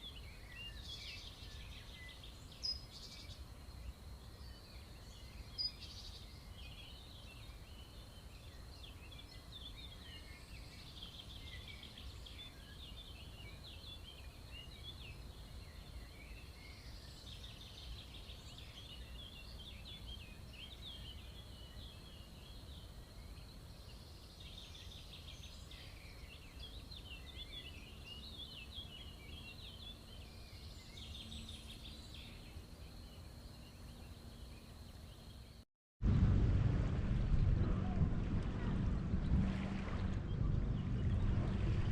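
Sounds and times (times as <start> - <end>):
high chirping birdsong: 0.0 - 35.5
low steady rumble: 36.0 - 41.9.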